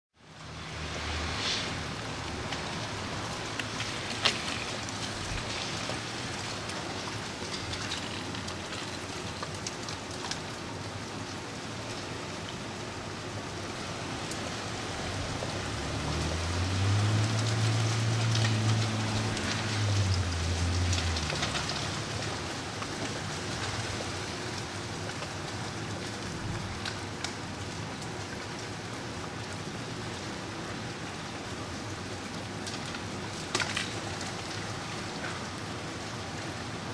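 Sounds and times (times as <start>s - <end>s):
vehicle passing with low hum: 0.2s - 6.6s, 13.7s - 24.4s
freezing rain hissing: 0.2s - 36.9s.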